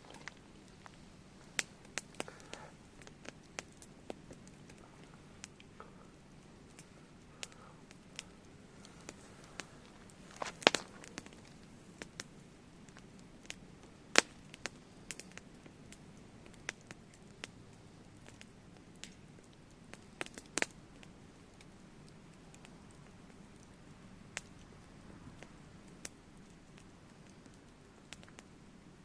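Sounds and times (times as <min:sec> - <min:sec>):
campfire crackling and popping: 0:00.0 - 0:29.0
faint fire hiss: 0:00.0 - 0:29.0.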